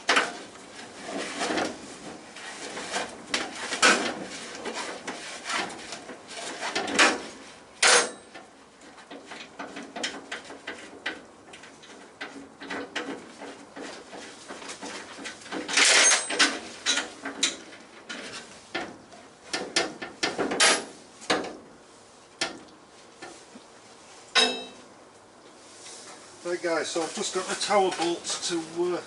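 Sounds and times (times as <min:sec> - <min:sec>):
metal tools clanking and scraping: 0:11.7 - 0:18.5, 0:24.4 - 0:24.9.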